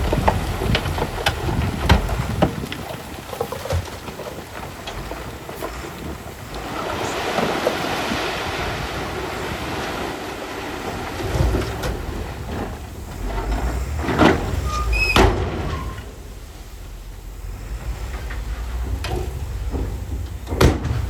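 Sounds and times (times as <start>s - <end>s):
heavy machinery rumbling: 0.0s - 21.0s
high metal squeal: 13.2s - 16.2s
heavy knocks: 17.4s - 21.0s.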